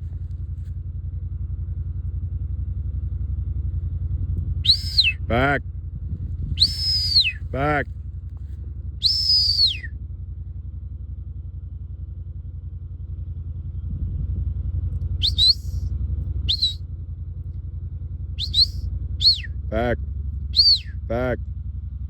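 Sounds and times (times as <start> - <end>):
shepherd's whistle: 4.6 - 5.4, 6.6 - 7.7, 9.0 - 9.9, 15.2 - 15.8, 16.5 - 16.8, 18.4 - 19.9, 20.6 - 21.2
low rumble: 13.7 - 16.7.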